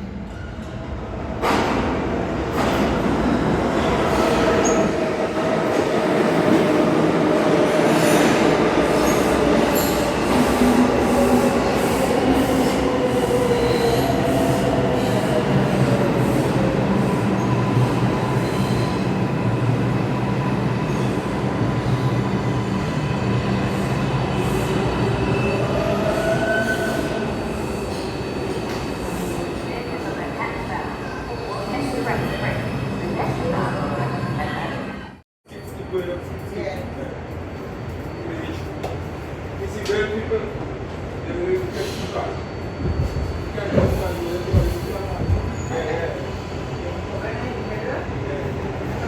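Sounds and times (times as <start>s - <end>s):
subway train on rails: 0.0s - 49.0s.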